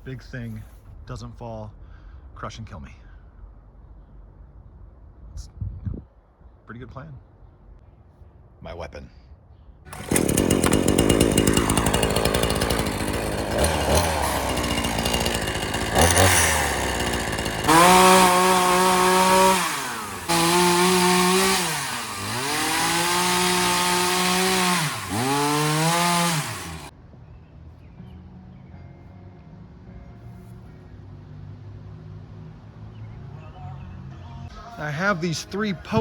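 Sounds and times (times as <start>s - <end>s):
chainsaw revving: 9.9s - 26.9s.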